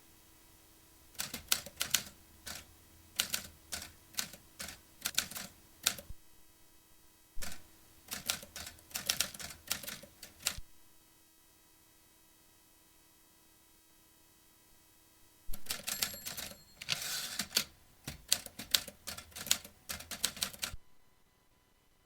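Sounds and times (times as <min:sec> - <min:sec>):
typewriter key strikes: 0:15.6 - 0:20.8.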